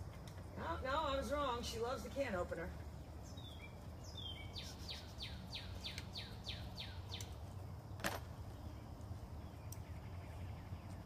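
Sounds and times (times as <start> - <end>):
low outdoor rumble: 0.0 - 11.0
bird singing whistled notes: 3.0 - 7.4.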